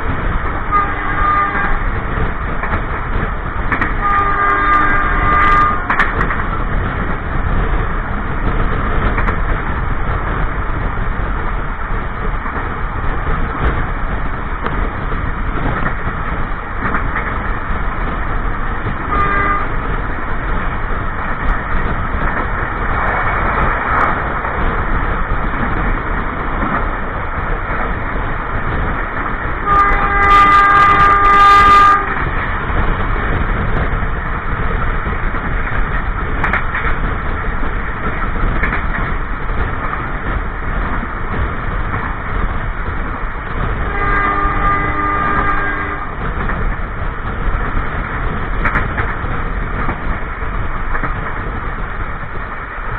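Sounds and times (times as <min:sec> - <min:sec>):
train wheels rumbling on rails: 0:00.0 - 0:52.9
locomotive horn: 0:00.7 - 0:01.9, 0:04.0 - 0:06.0, 0:19.1 - 0:19.8, 0:29.6 - 0:32.3, 0:43.9 - 0:46.2.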